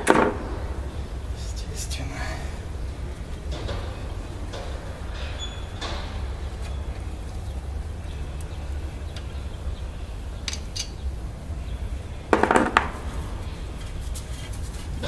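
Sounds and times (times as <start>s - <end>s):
steady low rumble: 0.0s - 15.0s
faint clicks: 2.8s - 11.1s.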